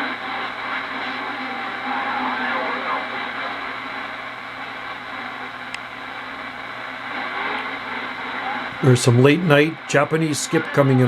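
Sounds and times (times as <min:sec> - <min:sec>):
faint voices over radio: 0:00.0 - 0:11.0
radio static hiss: 0:00.0 - 0:11.0.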